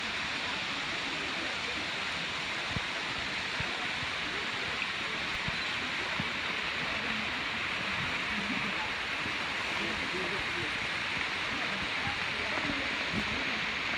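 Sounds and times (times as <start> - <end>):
waterfall rushing water: 0.0 - 13.9.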